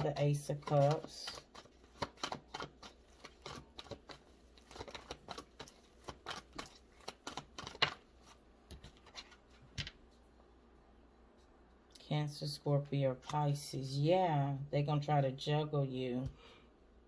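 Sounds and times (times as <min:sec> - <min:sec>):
cards being shuffled: 0:00.5 - 0:10.0.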